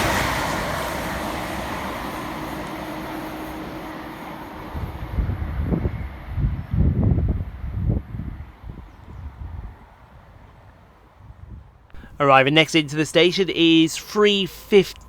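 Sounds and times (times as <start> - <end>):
electric train passing: 0.0 - 6.5
low gusty wind buffeting: 4.6 - 10.3.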